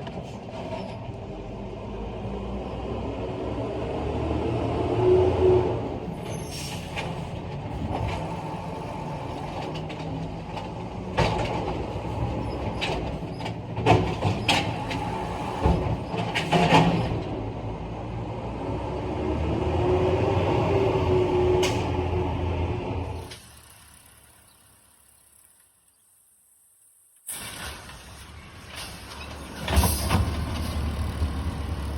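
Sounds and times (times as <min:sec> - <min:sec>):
metal clanks and knocks: 0:07.0 - 0:17.3.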